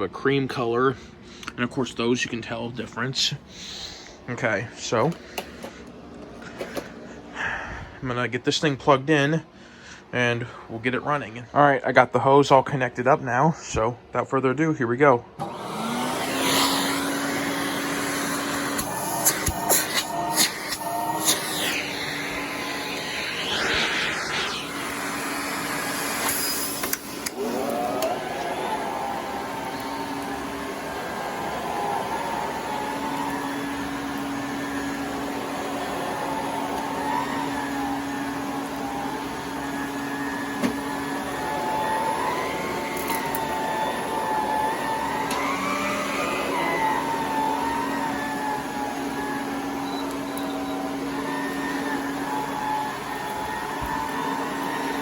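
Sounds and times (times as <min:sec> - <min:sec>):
vacuum cleaner running on carpet: 0:15.4 - 0:55.0.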